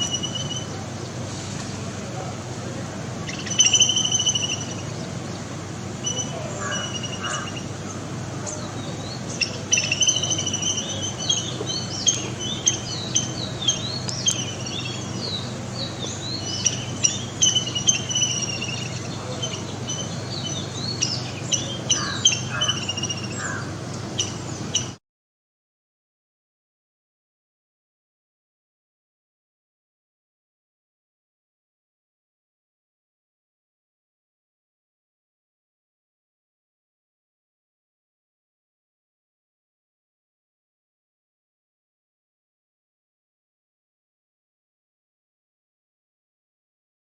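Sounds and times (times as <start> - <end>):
steady low hum: 0.0 - 25.0
small birds chirping: 3.2 - 25.0.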